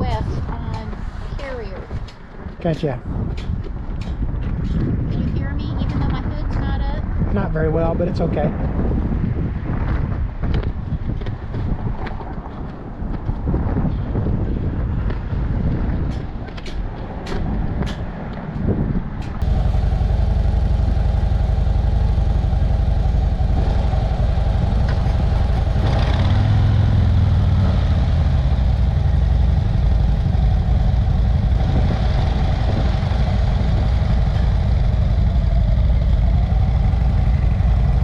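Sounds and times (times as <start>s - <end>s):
wind rumble on microphone: 0.0s - 38.0s
motorcycle engine running: 19.4s - 38.0s.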